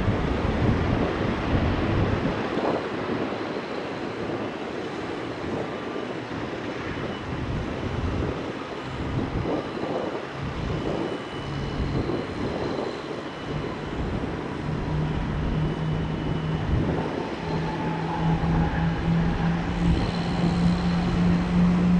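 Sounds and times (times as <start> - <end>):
jet engine rumble: 0.0 - 21.9
low hum: 9.0 - 21.9.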